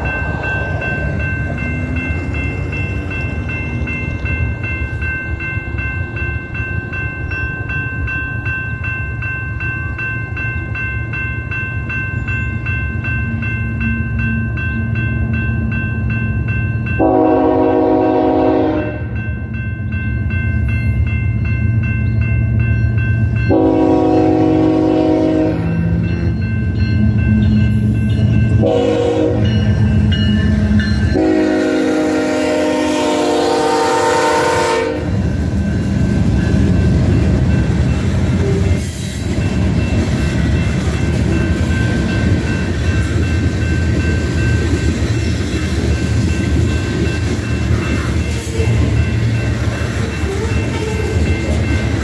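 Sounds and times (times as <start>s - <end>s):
freight train rumbling past: 0.0s - 52.0s
locomotive horn blasts: 17.0s - 19.1s, 23.5s - 25.8s, 28.6s - 29.6s, 31.1s - 35.2s.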